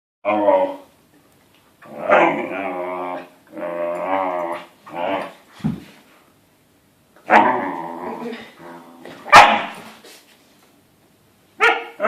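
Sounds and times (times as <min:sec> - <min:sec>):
puppy growling: 0:01.8 - 0:05.4, 0:07.3 - 0:09.8.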